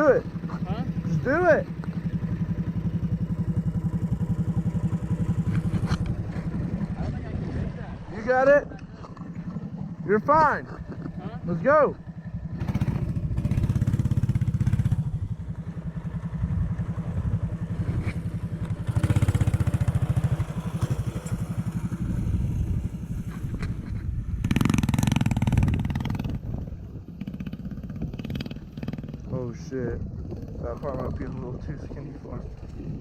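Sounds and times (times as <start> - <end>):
mini bike engine surging: 9.2 - 29.4.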